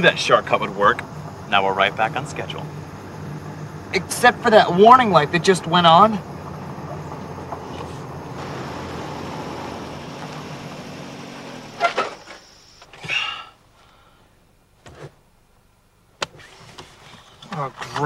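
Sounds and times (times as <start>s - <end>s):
car running noise: 0.0s - 13.4s.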